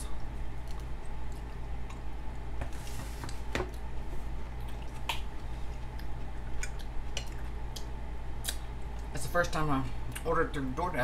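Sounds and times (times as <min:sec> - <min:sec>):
person chewing food: 0:00.0 - 0:09.1
steady low hum: 0:00.0 - 0:11.0
wet mouth clicks: 0:04.6 - 0:09.1.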